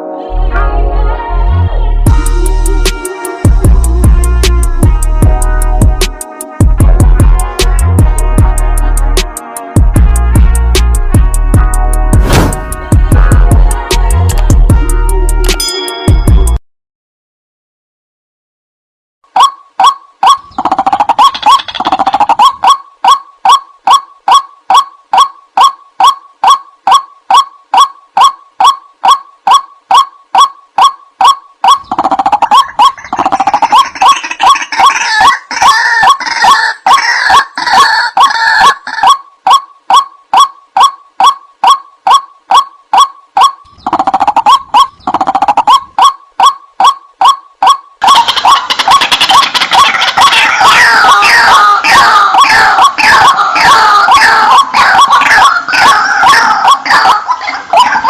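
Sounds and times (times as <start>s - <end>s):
waterhen croaking call: 19.4s - 58.0s.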